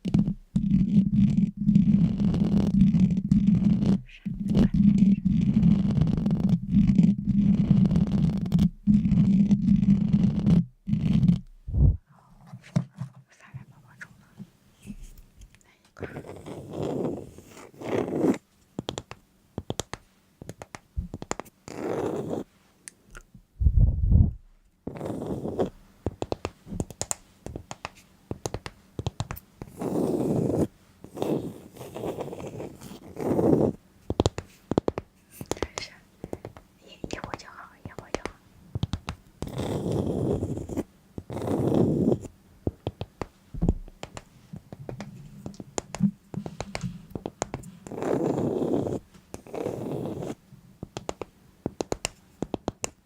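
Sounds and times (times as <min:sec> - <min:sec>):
scratching or scraping: 0:00.0 - 0:13.2, 0:16.0 - 0:18.4, 0:21.1 - 0:22.5, 0:24.1 - 0:25.8, 0:29.6 - 0:33.8, 0:39.4 - 0:42.3, 0:44.0 - 0:50.4
faint low hum: 0:00.0 - 0:18.8, 0:19.4 - 0:52.6
breathy whisper: 0:04.0 - 0:05.2, 0:13.2 - 0:15.0, 0:36.8 - 0:38.4
tapping and clicking: 0:18.8 - 0:21.5, 0:26.1 - 0:29.5, 0:34.1 - 0:39.2, 0:42.7 - 0:47.7, 0:50.8 - 0:53.0.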